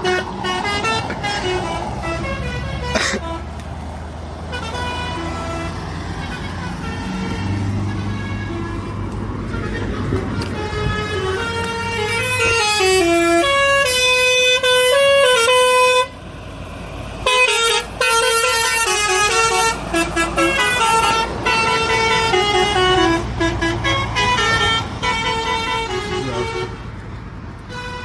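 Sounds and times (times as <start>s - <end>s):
vehicle horn blaring: 0.0s - 3.5s, 4.5s - 16.2s, 17.2s - 26.8s, 27.7s - 28.0s.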